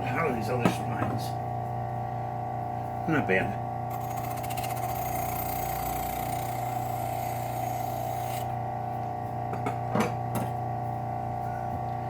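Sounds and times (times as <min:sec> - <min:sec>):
bench grinder hum and whine: 0:00.0 - 0:12.0
steel scrubbing on grinding wheel: 0:03.9 - 0:08.5.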